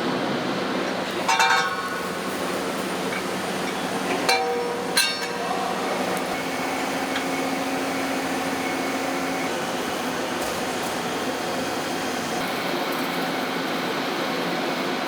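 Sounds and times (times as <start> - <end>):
factory machinery hum: 0.0 - 15.0
steel parts clinking: 1.2 - 5.6.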